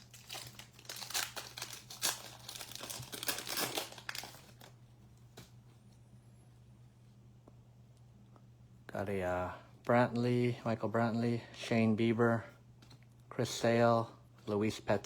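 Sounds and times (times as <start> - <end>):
wrapper tearing and crinkling: 0.0 - 4.7.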